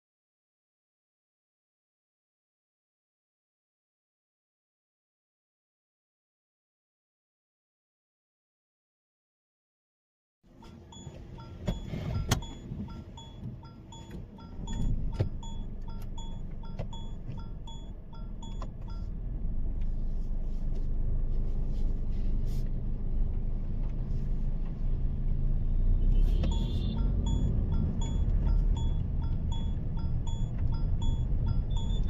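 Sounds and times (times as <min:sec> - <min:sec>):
car engine and tyres rumble: 0:10.5 - 0:32.0
repeated electronic tone: 0:10.9 - 0:19.1, 0:26.3 - 0:32.0.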